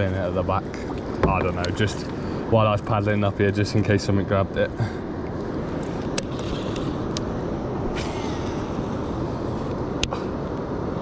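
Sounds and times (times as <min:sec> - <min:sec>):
low rushing noise: 0:05.1 - 0:11.0.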